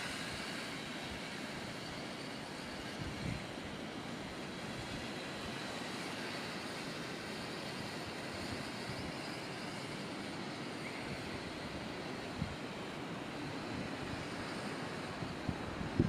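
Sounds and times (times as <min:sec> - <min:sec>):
gusty wind on microphone: 0:15.2 - 0:16.0.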